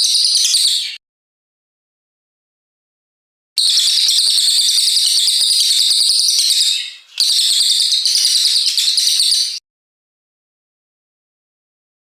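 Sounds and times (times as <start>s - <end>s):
songbird fast trilled song: 3.6s - 9.6s.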